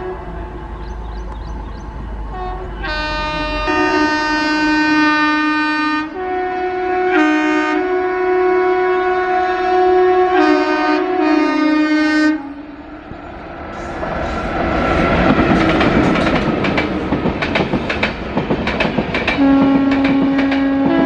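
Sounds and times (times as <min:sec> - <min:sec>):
locomotive horn: 0:00.0 - 0:00.9, 0:02.3 - 0:12.9, 0:19.4 - 0:21.0
train rumble: 0:00.0 - 0:06.4, 0:11.1 - 0:21.0
wheels clacking over rail joints: 0:13.6 - 0:21.0.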